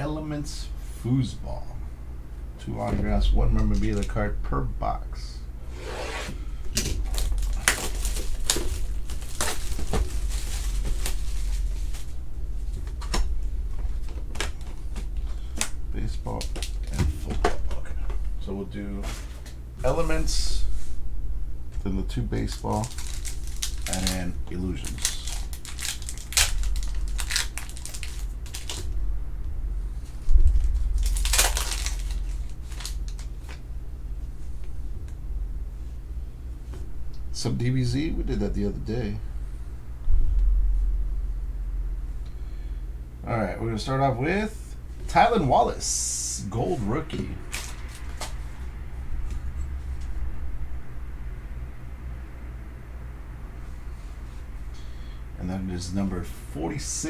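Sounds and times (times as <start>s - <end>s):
steady low hum: 0.0s - 57.0s
packaging crinkling and rustling: 6.8s - 18.3s, 22.4s - 29.0s, 30.0s - 33.6s, 46.7s - 49.5s
wrapping torn and crumpled: 7.0s - 12.2s, 13.9s - 17.2s, 22.4s - 29.0s, 30.0s - 33.6s, 47.2s - 48.6s.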